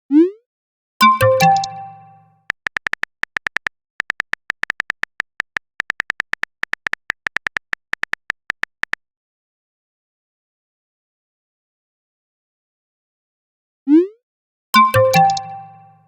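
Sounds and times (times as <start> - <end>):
rapid high typing beeps: 1.4 - 1.8, 2.5 - 9.0.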